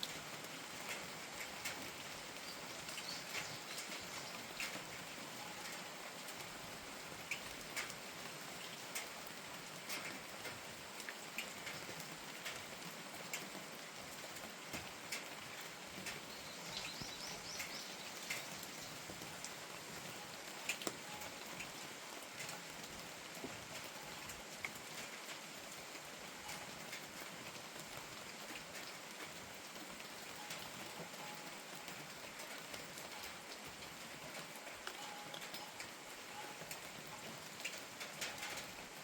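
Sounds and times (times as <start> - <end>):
steady rain falling: 0.0 - 39.0
water drips ticking: 0.0 - 39.0
bird chirping: 16.3 - 19.1.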